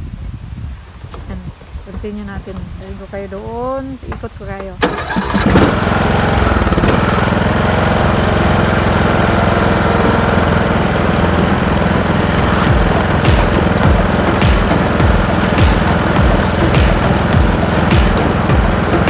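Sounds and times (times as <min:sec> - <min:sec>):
small petrol engine running: 0:04.8 - 0:19.0
low thumps: 0:09.8 - 0:19.0.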